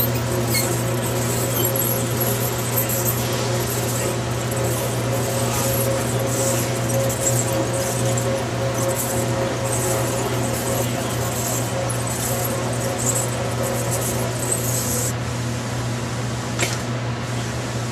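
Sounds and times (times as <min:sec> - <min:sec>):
welder machine hum: 0:00.0 - 0:15.2.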